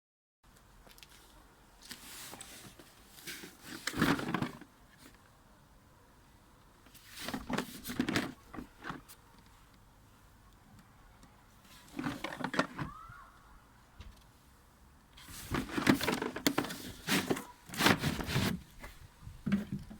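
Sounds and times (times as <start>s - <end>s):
packaging rustling and scraping: 1.0s - 5.2s, 6.9s - 9.2s, 11.7s - 13.0s, 15.2s - 19.9s.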